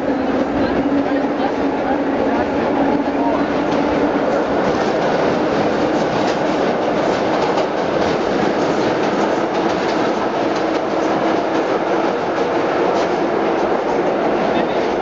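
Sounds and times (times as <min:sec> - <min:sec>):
subway train rumbling: 0:00.0 - 0:15.0
wheels clicking over rail joints: 0:03.5 - 0:14.1.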